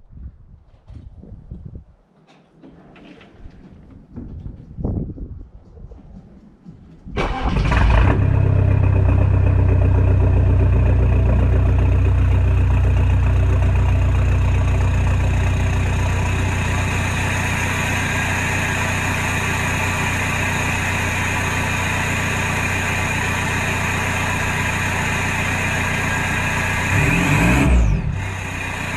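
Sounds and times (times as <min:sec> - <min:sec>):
starter motor cranking: 0:07.2 - 0:08.2, 0:26.6 - 0:28.9
diesel engine idling loudly: 0:07.2 - 0:28.9.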